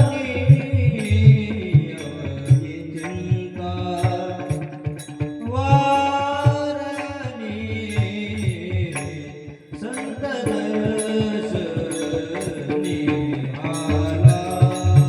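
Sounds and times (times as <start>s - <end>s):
instrumental accompaniment: 0.0s - 15.0s.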